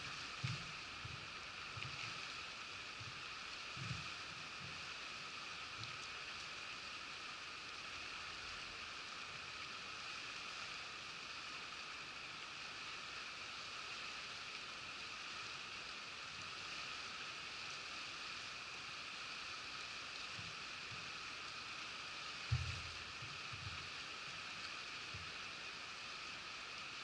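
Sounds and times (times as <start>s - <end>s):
river flowing over stones: 0.0s - 27.0s.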